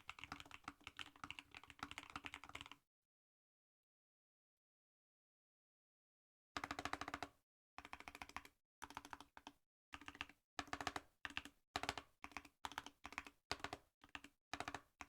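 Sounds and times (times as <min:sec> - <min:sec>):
keyboard typing: 0:00.0 - 0:02.8, 0:06.6 - 0:15.0.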